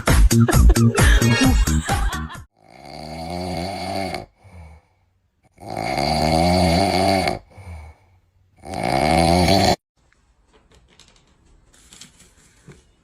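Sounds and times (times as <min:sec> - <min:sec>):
dance music: 0:00.0 - 0:02.4
pet snoring loudly: 0:02.5 - 0:09.8.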